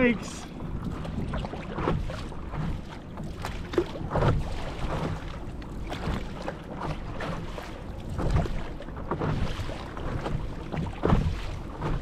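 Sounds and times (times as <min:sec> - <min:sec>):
water slapping against board: 0:00.0 - 0:12.0.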